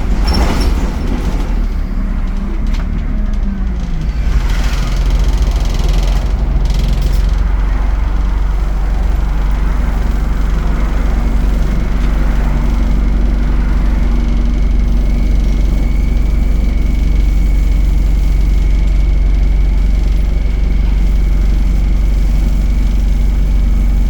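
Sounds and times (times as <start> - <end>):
bus diesel engine running: 0.0 - 24.0.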